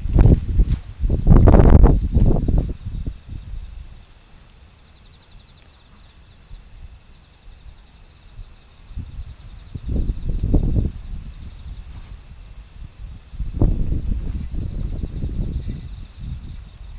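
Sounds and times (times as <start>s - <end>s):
wind gusts buffeting microphone: 0.0s - 4.2s, 8.3s - 16.9s
faint insects chirping: 0.1s - 16.9s.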